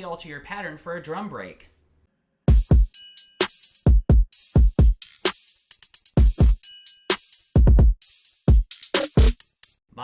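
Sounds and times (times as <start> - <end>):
deep kick drums: 2.5 - 2.9, 3.9 - 5.0, 6.2 - 6.6, 7.6 - 9.4
snare and hi-hat hits: 2.5 - 9.8.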